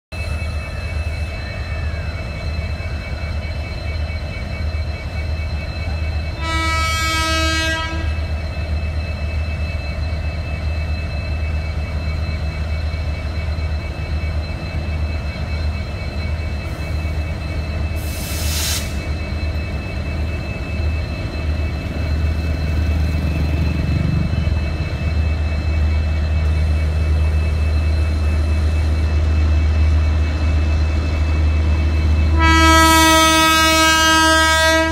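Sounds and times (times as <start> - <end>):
locomotive humming: 0.1 - 34.9
locomotive horn blast: 6.3 - 8.2, 32.3 - 34.9.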